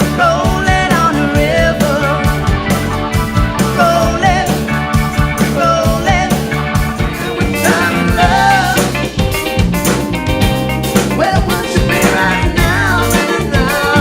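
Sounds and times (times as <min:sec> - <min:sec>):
person singing: 0:00.0 - 0:02.4, 0:03.6 - 0:04.7, 0:05.4 - 0:09.1, 0:11.1 - 0:14.0
band playing pop-rock: 0:00.0 - 0:14.0.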